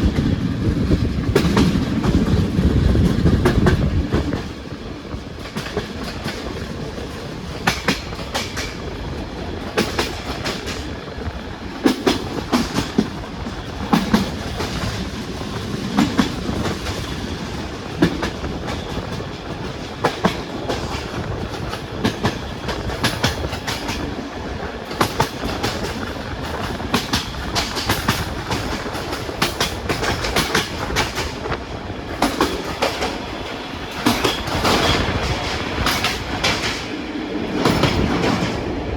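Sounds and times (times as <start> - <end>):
train wheels rumbling on track: 0.0 - 38.9
wheels clicking over rail joints: 0.0 - 38.9.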